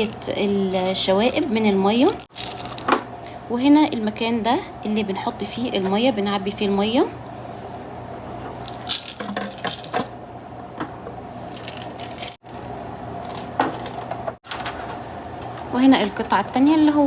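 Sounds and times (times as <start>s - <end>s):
plastic parts clicking and clattering: 2.3s - 3.0s, 8.7s - 10.1s, 11.6s - 12.4s.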